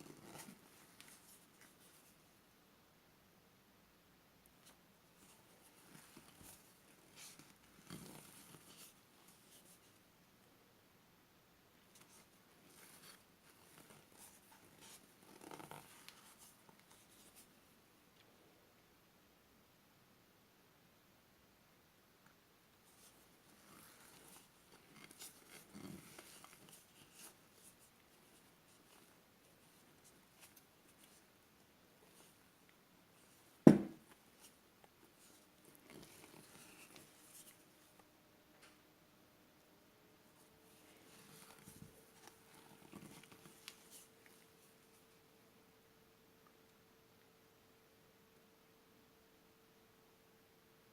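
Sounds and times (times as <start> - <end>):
sharp knock: 33.7 - 34.0.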